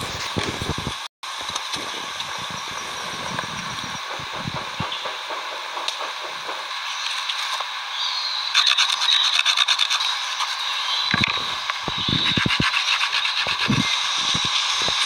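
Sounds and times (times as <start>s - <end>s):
steady hiss: 0.0s - 8.7s, 10.0s - 15.0s
rapid scraping strokes: 11.4s - 15.0s.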